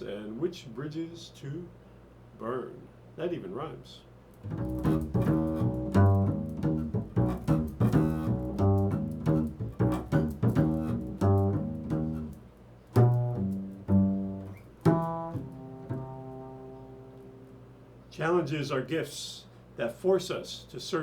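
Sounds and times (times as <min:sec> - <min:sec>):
plucked low string instrument: 0:04.4 - 0:12.4, 0:13.0 - 0:17.8.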